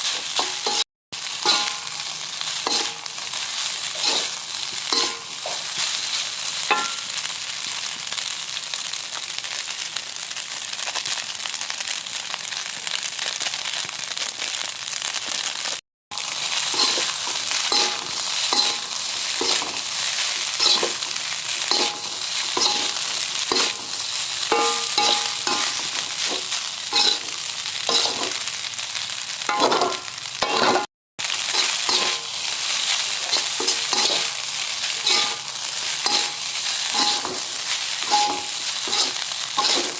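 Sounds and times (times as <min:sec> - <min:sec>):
rice sizzling in a pan: 0:00.0 - 0:39.9
spatula scraping a pan: 0:01.4 - 0:07.0, 0:16.6 - 0:28.4, 0:31.5 - 0:39.9
spatula clinking against pan: 0:02.7 - 0:03.1, 0:06.7 - 0:07.0, 0:24.5 - 0:25.7.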